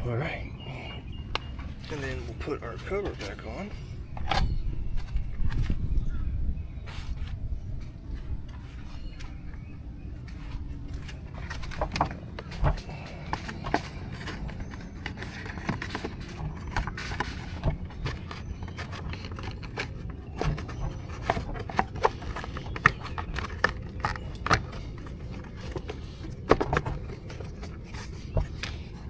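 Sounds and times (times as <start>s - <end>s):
plastic cover clicks and knocks: 11.4s - 28.9s.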